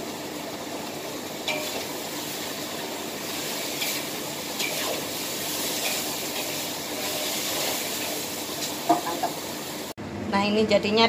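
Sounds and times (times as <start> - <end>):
stir-fry sizzling in a wok: 0.0 - 10.0
spatula scraping a wok: 3.4 - 9.1.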